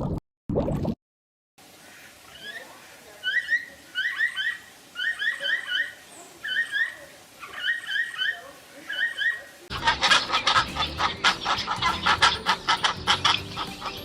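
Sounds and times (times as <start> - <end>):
small animal squeaky chirps: 2.3 - 9.5.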